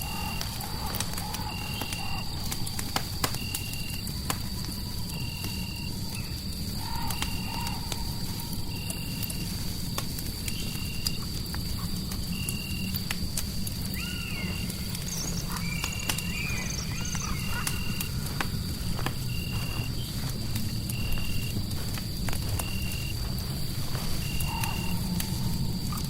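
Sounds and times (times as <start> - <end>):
fire crackling: 0.0 - 26.0
wavering calls: 13.9 - 20.3, 23.9 - 26.0.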